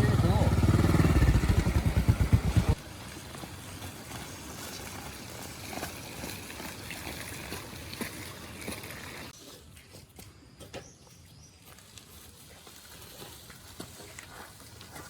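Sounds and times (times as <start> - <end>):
motorbike engine running: 0.0 - 3.4.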